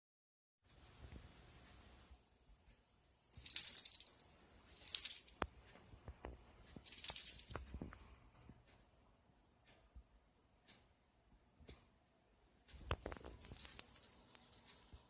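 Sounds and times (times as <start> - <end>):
small jingle bell shaking: 3.2 - 8.0, 13.1 - 14.7.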